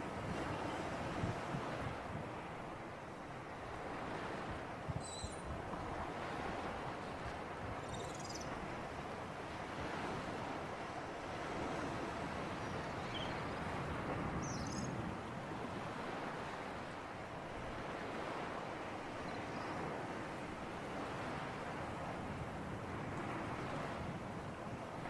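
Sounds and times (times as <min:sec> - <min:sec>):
waves washing: 0:00.0 - 0:07.9, 0:08.5 - 0:25.0.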